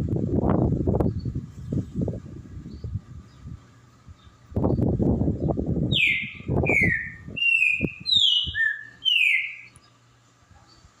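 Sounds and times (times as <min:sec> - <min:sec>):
low rumbling noise: 0:00.0 - 0:11.0
saltator whistled song: 0:05.9 - 0:09.7.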